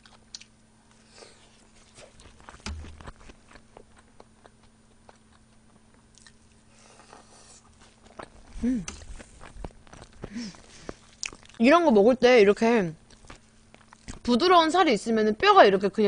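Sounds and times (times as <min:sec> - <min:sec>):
person chewing: 0:00.0 - 0:11.6, 0:13.0 - 0:14.2
faint steady hum: 0:00.0 - 0:16.0.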